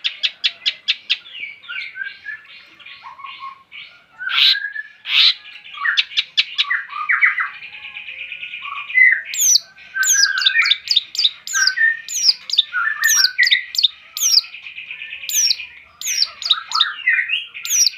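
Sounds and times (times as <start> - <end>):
shrike singing: 4.3 - 17.9.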